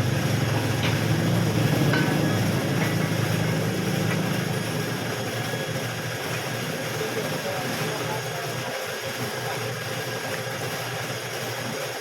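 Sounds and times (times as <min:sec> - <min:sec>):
engine humming: 0:00.0 - 0:05.2.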